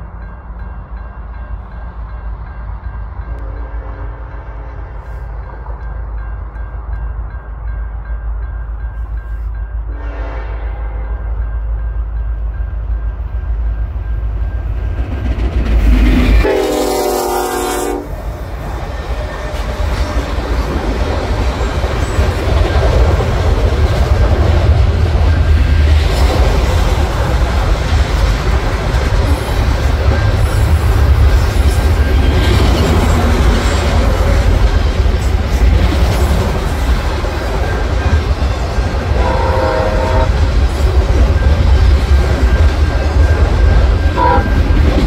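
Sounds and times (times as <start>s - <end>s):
freight cars rumbling on rails: 9.6s - 45.0s
train horn blast: 9.9s - 11.4s, 16.3s - 18.2s, 39.1s - 40.4s, 44.2s - 44.6s.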